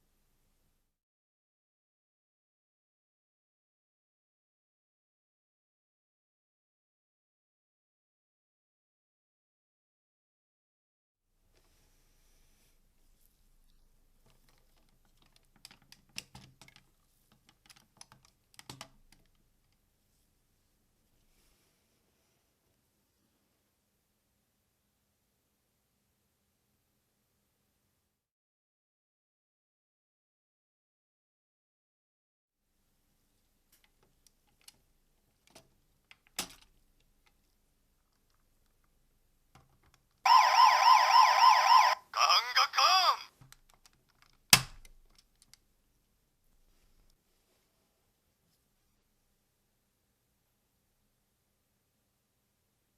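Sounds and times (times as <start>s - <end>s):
plastic toy parts clicking: 14.1s - 19.8s, 33.8s - 37.5s, 43.4s - 45.6s
electronic warbling siren sound: 40.3s - 42.0s
plastic snap: 43.4s - 45.6s.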